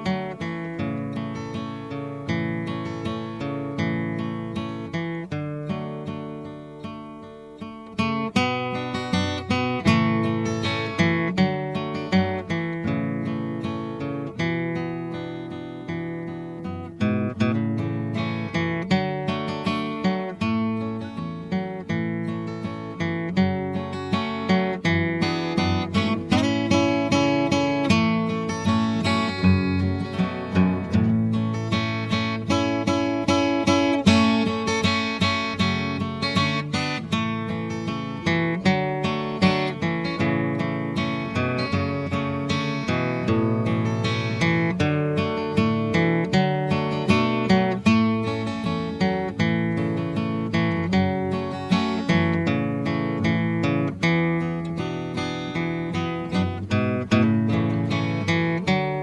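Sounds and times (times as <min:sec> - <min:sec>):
acoustic guitar picked and strummed: 0:00.0 - 0:59.0.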